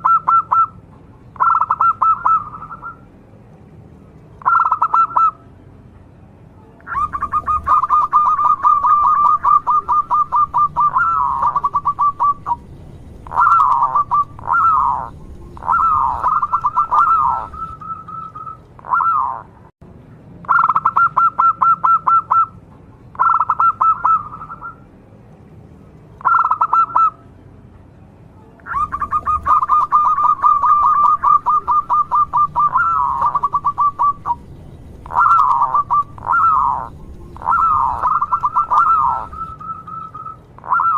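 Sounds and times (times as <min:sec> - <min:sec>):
dove stuttering coos: 0:06.9 - 0:19.5, 0:28.7 - 0:34.4, 0:35.0 - 0:40.9.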